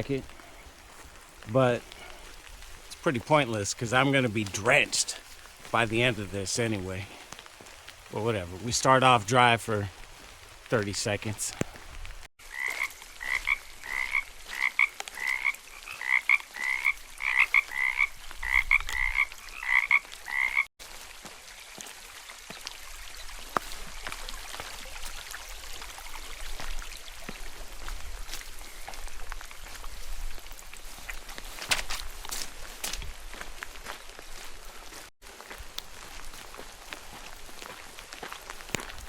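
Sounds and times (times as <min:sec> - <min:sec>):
soft steady rain: 0:00.0 - 0:39.0
frog croaking: 0:12.4 - 0:20.7.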